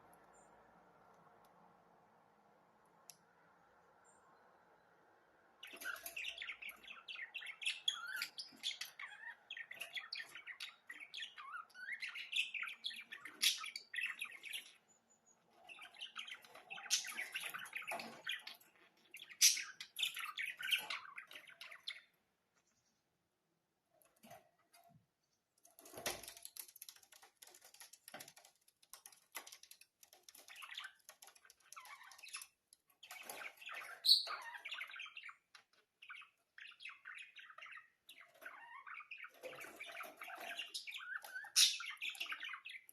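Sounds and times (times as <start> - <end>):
budgerigars chattering and warbling: 5.6 - 14.8, 15.7 - 22.1, 31.7 - 42.9.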